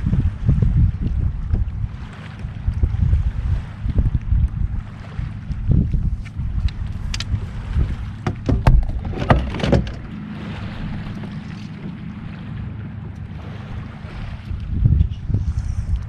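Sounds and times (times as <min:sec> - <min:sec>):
water noise: 0:00.0 - 0:16.0
wind buffeting microphone: 0:00.0 - 0:16.0
sharp clicks and knocks: 0:08.2 - 0:10.1.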